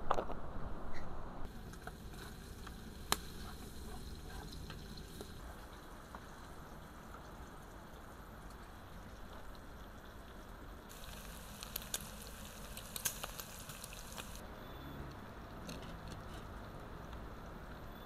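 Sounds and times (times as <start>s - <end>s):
oil popping: 1.5s - 5.5s, 10.9s - 14.4s
food sizzling in hot oil: 1.5s - 8.2s, 10.9s - 14.4s.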